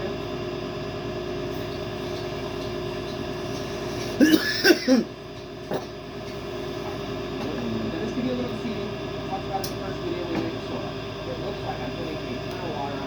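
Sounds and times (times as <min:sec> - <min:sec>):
steady background hum: 0:00.0 - 0:13.0
man coughing: 0:04.0 - 0:05.1.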